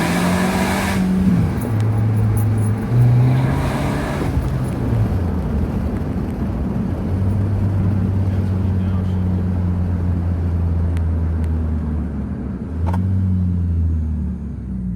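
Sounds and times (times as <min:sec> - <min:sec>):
car engine accelerating: 0:00.0 - 0:14.9.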